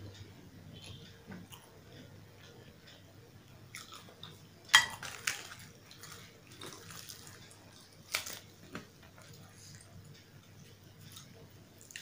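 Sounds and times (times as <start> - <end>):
quiet chewing: 0.1 - 12.0
fried bread crackling torn: 5.0 - 8.8.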